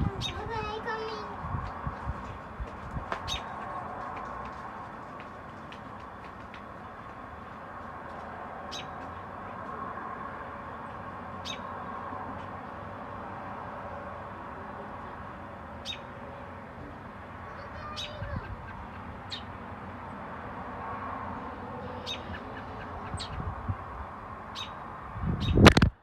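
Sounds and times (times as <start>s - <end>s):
small bird chirping: 0.2s - 1.2s, 21.9s - 23.4s, 24.6s - 24.8s.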